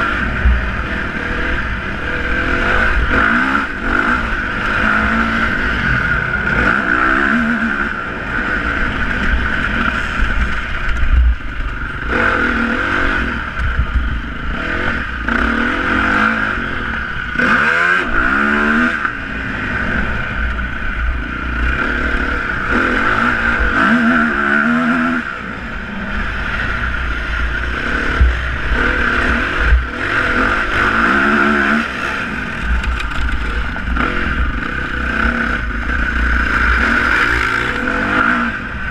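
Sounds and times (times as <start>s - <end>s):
high whine: 0.0s - 38.9s
motorcycle engines revving: 0.0s - 38.9s
low rumble: 25.0s - 38.9s.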